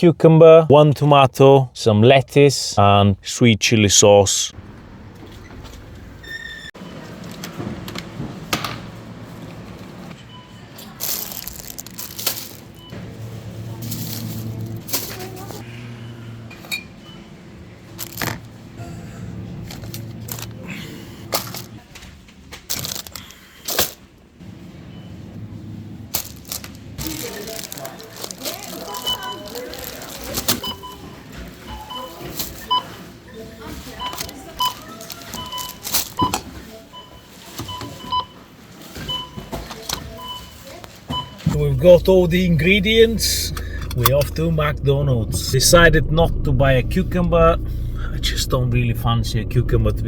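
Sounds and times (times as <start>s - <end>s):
groceries packaging handled: 10.8s - 12.8s, 21.4s - 24.1s, 26.1s - 31.6s, 33.7s - 36.6s
barcode scanners beeping: 28.8s - 29.6s, 30.6s - 33.0s, 33.9s - 38.3s
low steady hum: 41.4s - 50.0s.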